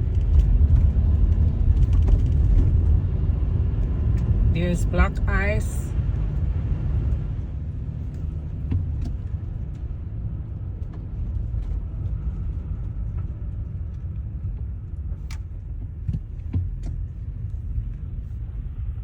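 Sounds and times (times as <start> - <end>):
car road rumble from inside: 0.0 - 19.0.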